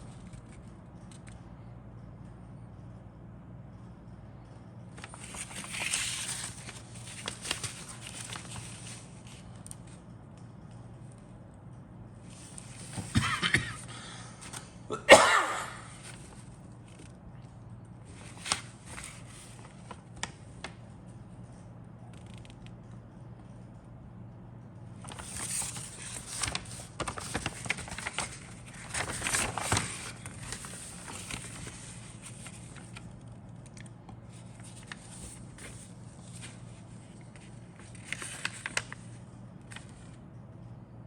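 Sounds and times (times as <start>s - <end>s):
steady low hum: 0.0s - 41.0s
packaging crinkling and rustling: 5.0s - 9.9s, 25.0s - 33.1s, 33.7s - 40.0s.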